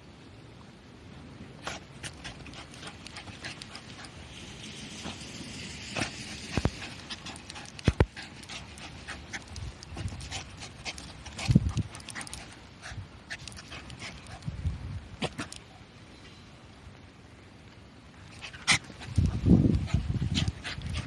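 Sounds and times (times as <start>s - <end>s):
claws scraping dirt: 1.6s - 14.5s
dog panting: 1.6s - 14.5s, 18.4s - 21.0s.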